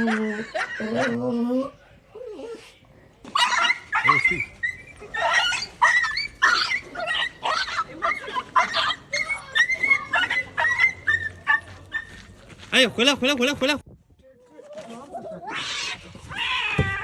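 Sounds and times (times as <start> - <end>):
small dog yapping: 3.3 - 12.2.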